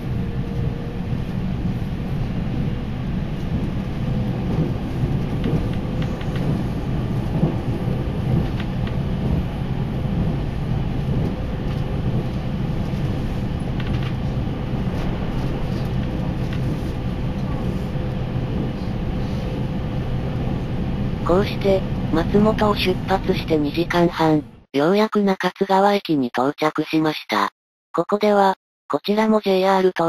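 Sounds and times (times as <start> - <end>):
train wheels rumbling on rail: 0.0 - 23.4.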